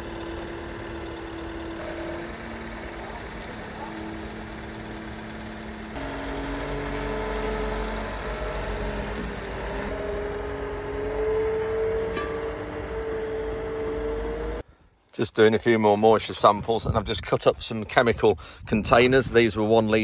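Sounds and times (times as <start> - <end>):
vehicle engine accelerating: 0.0 - 14.6.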